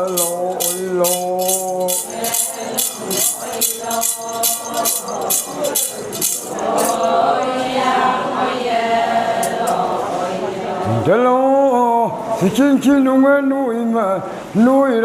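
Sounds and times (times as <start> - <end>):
jingling beat: 0.0 - 7.2
group of singers chanting: 1.9 - 11.1.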